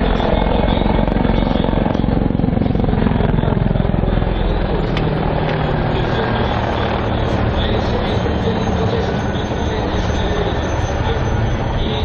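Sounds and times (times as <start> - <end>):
helicopter rotor beating: 0.0 - 12.0
turbine engines: 0.0 - 12.0.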